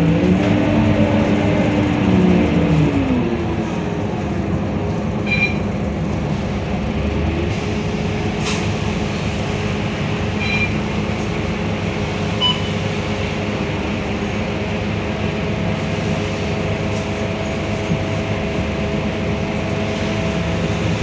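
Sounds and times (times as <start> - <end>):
bus diesel engine running: 0.0 - 21.0.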